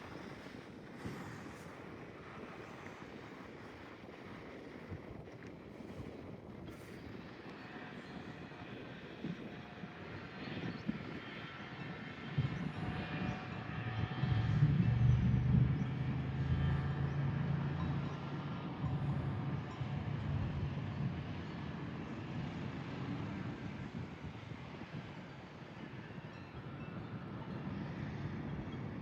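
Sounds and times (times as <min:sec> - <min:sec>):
vehicle engine running: 0:13.8 - 0:23.6.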